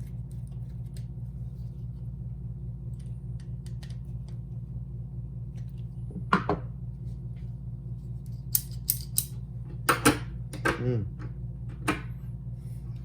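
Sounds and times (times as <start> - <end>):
steady low hum: 0.0 - 13.0
metal lock parts clattering: 8.5 - 9.4.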